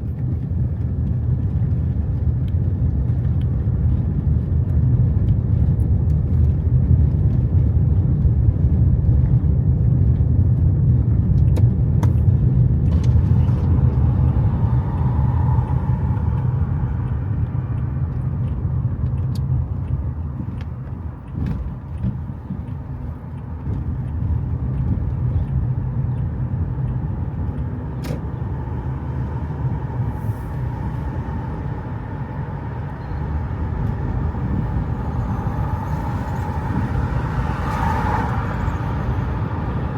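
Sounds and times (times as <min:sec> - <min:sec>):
road vehicle rumble: 0:00.0 - 0:39.9.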